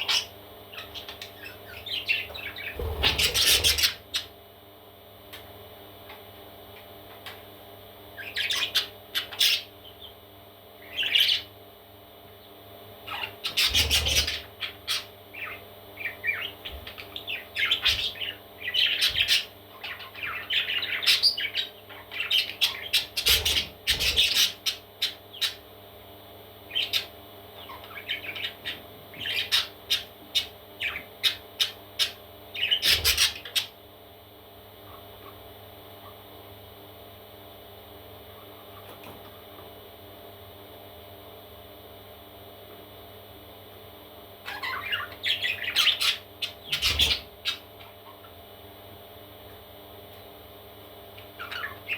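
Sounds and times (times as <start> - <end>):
parrot chicks chirping and squawking: 0.0 - 4.4, 8.1 - 11.6, 12.3 - 25.9, 26.6 - 33.9, 34.7 - 36.6, 38.2 - 39.8, 44.4 - 49.3, 51.0 - 51.9.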